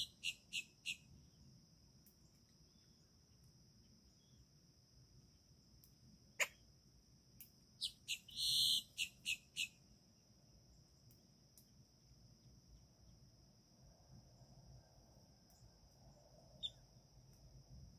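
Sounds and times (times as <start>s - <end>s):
bird calling: 0.0s - 1.0s, 7.8s - 9.7s
high insect drone: 0.0s - 17.9s.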